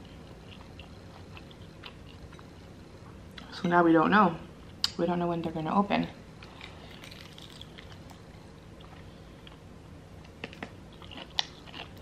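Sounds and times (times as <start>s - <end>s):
soft chewing: 0.0s - 3.6s, 6.4s - 12.0s
low steady hum: 0.0s - 12.0s.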